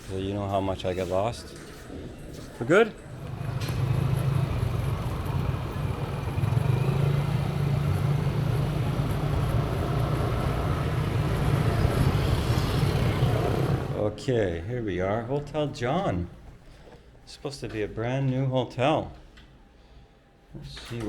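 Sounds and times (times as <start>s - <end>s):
road noise: 1.0s - 14.1s
motorbike engine running: 3.1s - 14.0s.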